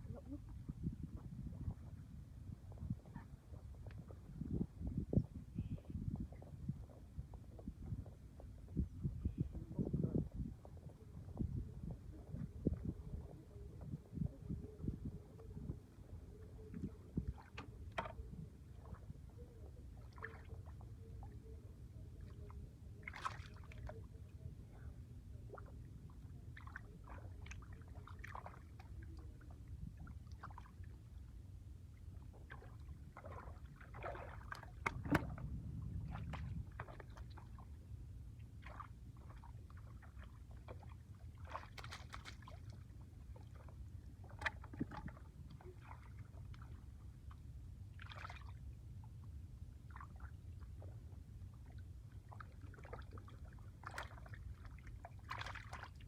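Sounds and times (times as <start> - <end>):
low steady rumble: 0.0 - 56.0
shallow water splashing: 16.3 - 24.3, 25.5 - 31.2, 32.0 - 37.8, 38.4 - 48.7, 49.8 - 56.0.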